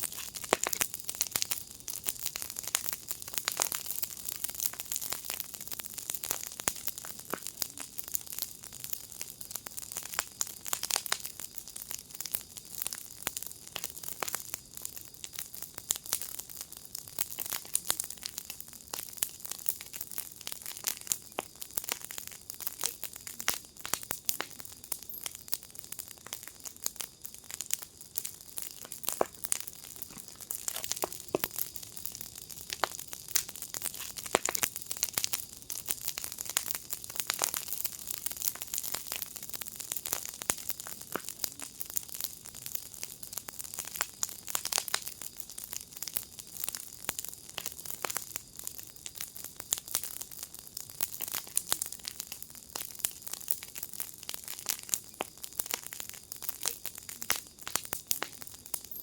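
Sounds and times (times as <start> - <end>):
soft fire hiss: 0.0 - 46.8, 47.5 - 59.0
fire crackling and popping: 0.0 - 59.0.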